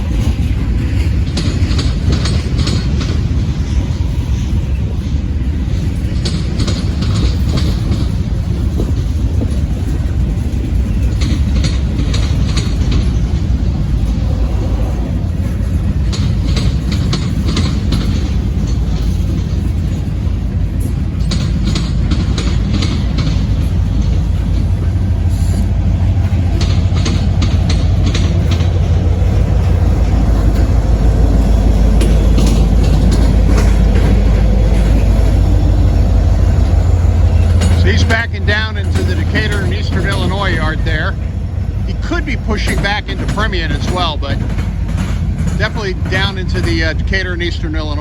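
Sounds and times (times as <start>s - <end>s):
freight train rumbling: 0.0s - 48.0s
wheels clicking over rail joints: 0.0s - 48.0s.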